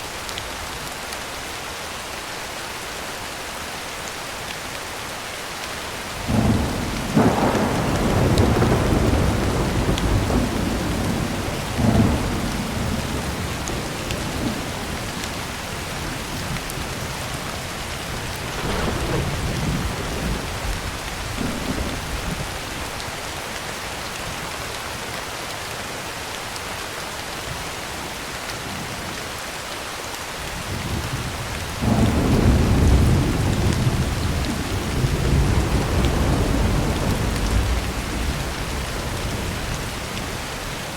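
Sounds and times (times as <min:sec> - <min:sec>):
heavy rain on a tin roof: 0:00.0 - 0:40.9
rolling thunder: 0:06.2 - 0:22.6, 0:30.6 - 0:40.8.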